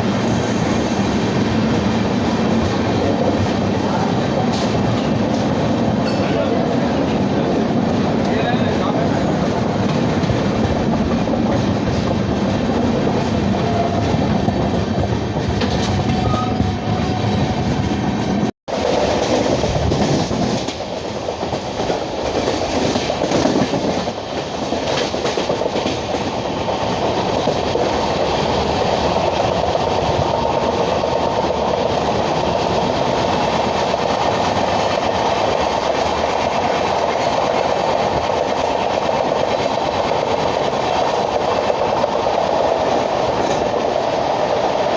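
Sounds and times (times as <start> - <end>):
train clicks: 0.0 - 44.9
train wheels on rail: 0.0 - 44.9.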